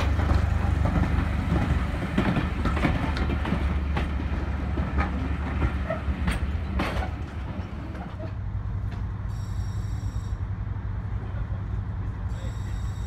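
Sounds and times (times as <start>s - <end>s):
wheels clacking over rail joints: 0.0s - 9.2s
low train rumble: 0.0s - 13.0s.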